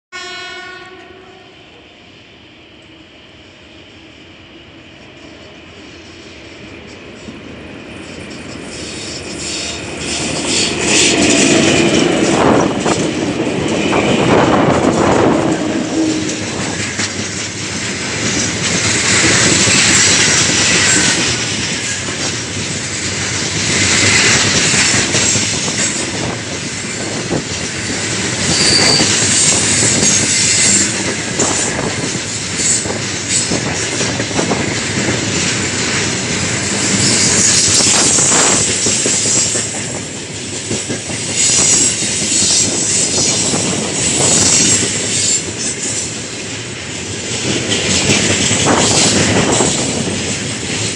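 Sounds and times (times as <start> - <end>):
train wheels clattering over rail joints: 6.7 - 50.9
high-pitched wheel squealing: 8.0 - 13.0, 28.4 - 31.6.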